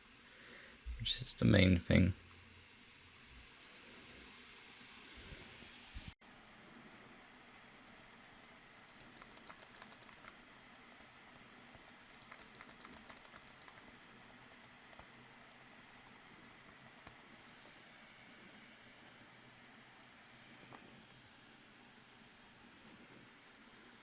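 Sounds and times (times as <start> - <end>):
faint laptop keyboard typing: 6.2 - 17.6.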